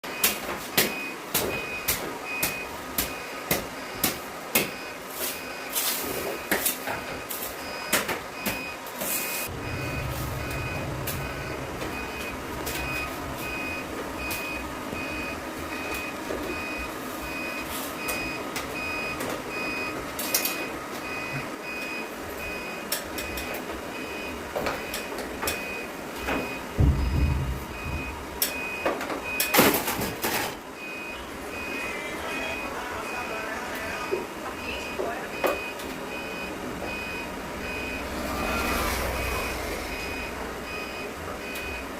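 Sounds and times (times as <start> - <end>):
electronic warning beeper: 4.7 - 23.4, 24.0 - 29.7, 30.8 - 41.9
low hum: 9.5 - 16.0, 36.8 - 41.0.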